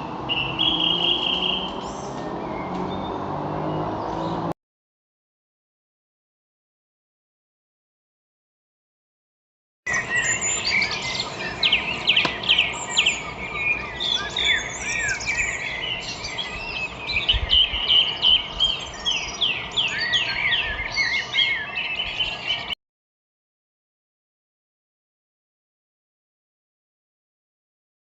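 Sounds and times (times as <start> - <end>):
birds chirping in chorus: 0.0 - 4.5, 9.9 - 22.8.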